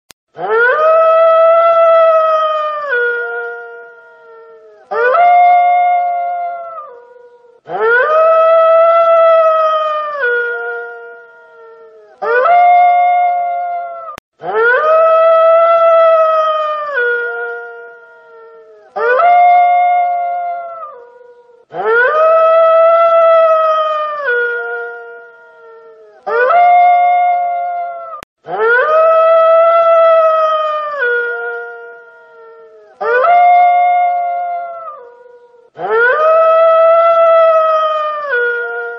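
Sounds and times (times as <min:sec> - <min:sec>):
wolf howling: 0:00.4 - 0:38.9.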